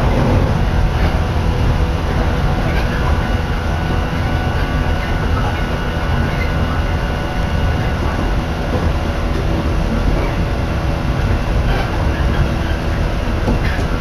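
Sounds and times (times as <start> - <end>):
train wheels rumbling on track: 0.0 - 14.0.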